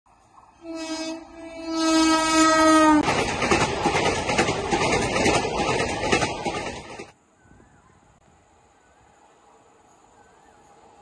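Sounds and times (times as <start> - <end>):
train coaches rushing past: 0.3 - 7.2
train horn blasts: 0.6 - 3.0.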